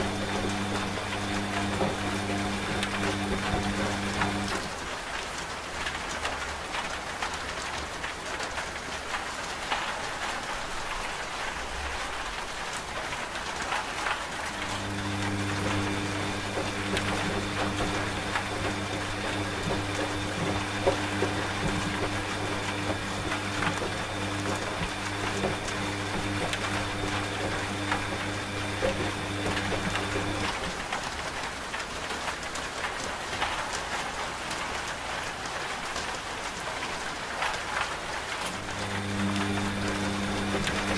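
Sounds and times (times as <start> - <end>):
washing machine motor hum: 0.0 - 4.8, 14.4 - 31.0, 38.5 - 40.9
rain pattering: 0.0 - 40.9.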